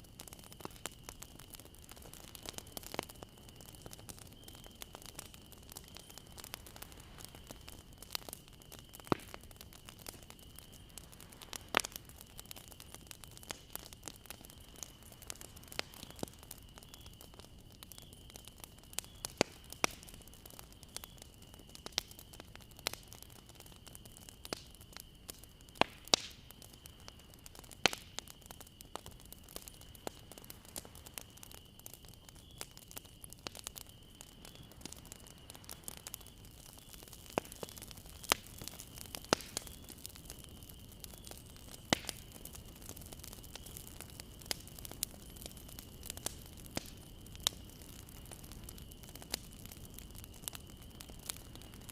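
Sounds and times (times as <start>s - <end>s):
bonfire crackling and popping: 0.0s - 51.9s
soft hiss: 0.0s - 51.9s.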